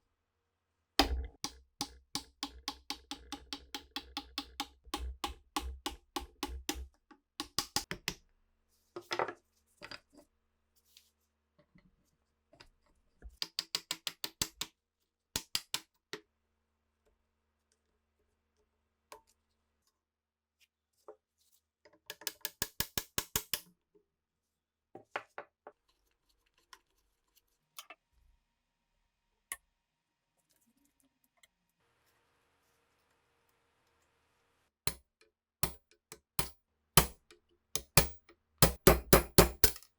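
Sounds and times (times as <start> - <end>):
knocks and taps: 1.0 - 8.2, 35.6 - 39.9.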